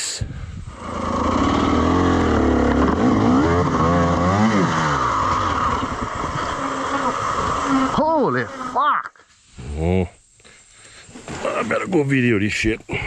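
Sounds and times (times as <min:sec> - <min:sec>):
dirt bike engine revving: 0:00.7 - 0:08.8.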